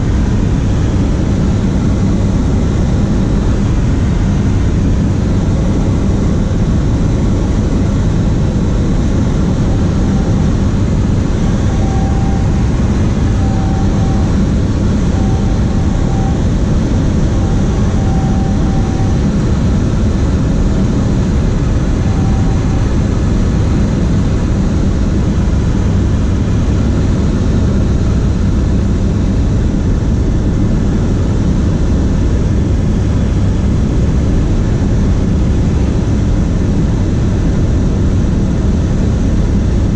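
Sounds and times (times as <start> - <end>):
light aircraft engine and propeller: 0.0 - 39.9
short faint beeps: 9.6 - 19.6, 22.0 - 23.1.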